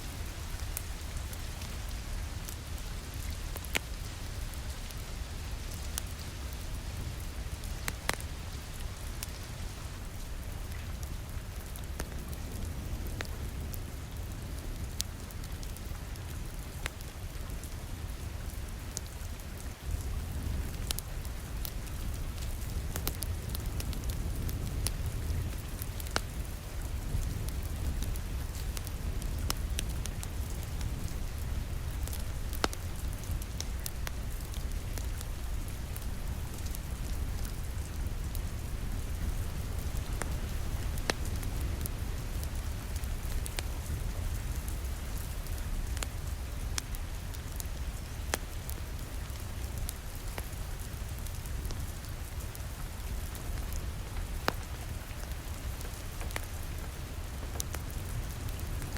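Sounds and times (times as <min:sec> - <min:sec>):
fireplace fire crackling: 0:00.0 - 0:58.9.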